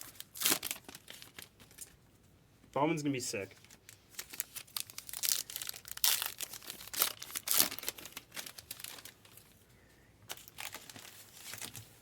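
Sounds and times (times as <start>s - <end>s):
card wrappers torn and crinkled: 0.0s - 1.9s, 3.6s - 9.4s, 10.3s - 11.9s.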